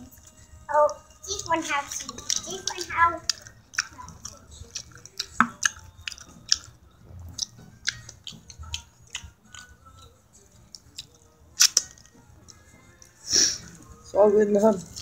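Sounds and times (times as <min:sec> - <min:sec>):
chewing food with wet smacking: 0:01.3 - 0:13.2.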